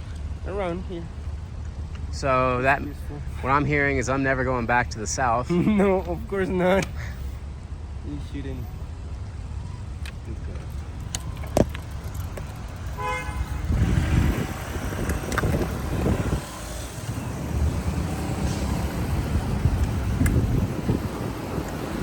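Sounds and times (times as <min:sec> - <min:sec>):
street traffic rumble: 0:00.0 - 0:22.0
short car horn toot: 0:13.0 - 0:13.6.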